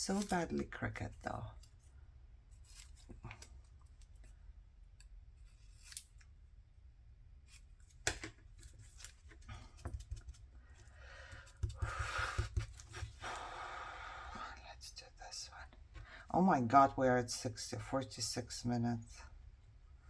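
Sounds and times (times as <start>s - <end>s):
scissors snipping paper: 5.6s - 6.3s.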